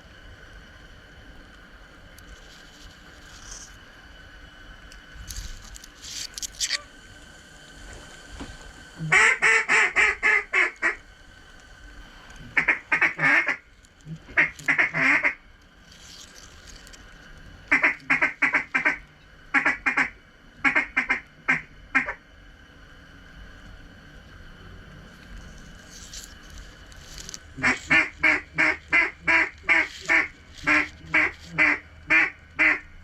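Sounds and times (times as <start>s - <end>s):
duck quacking: 9.0s - 11.0s, 12.6s - 13.6s, 14.4s - 15.4s, 17.7s - 22.2s, 27.6s - 32.8s.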